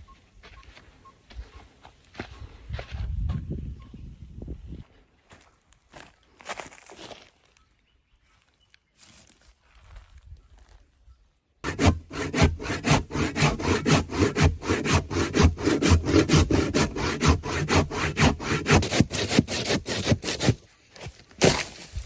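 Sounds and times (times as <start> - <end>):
hand saw cutting wood: 11.6 - 20.7.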